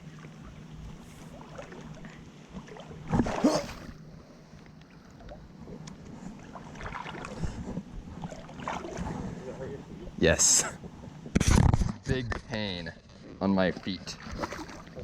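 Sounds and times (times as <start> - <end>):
water splashing around wading person: 0.0 - 10.0, 13.7 - 15.0.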